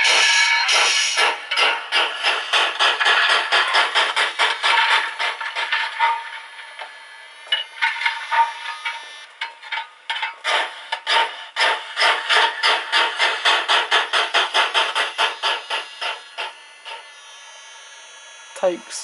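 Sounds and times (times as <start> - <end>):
faint steady whine: 4.4 - 11.4, 14.1 - 19.0
model train steam chuffs: 10.5 - 17.0.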